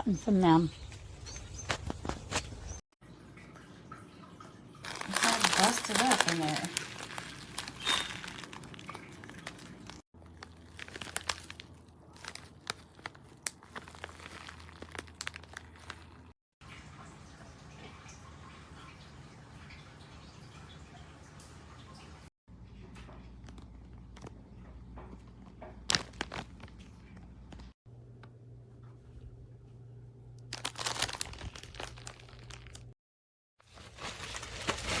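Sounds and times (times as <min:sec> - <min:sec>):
plastic packaging crinkling: 0:04.9 - 0:16.3, 0:25.8 - 0:27.2, 0:30.4 - 0:33.0, 0:33.6 - 0:35.0.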